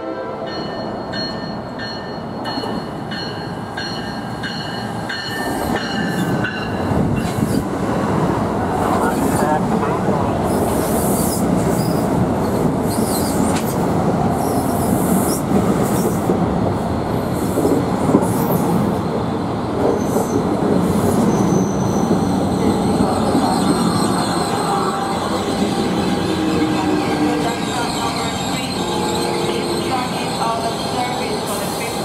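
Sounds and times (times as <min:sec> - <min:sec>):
train wheels rumbling on rail: 0:00.0 - 0:32.0
high-pitched squeals: 0:21.2 - 0:31.8.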